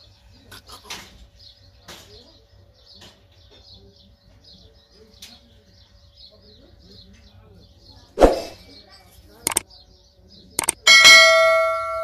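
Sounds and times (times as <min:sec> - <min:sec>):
small birds chirping: 0:00.0 - 0:10.9
sharp clicks: 0:10.6 - 0:10.8.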